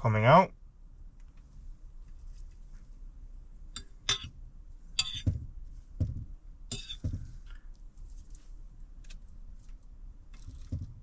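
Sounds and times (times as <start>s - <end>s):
cookware clinking and knocking: 3.8s - 4.3s, 5.0s - 7.3s.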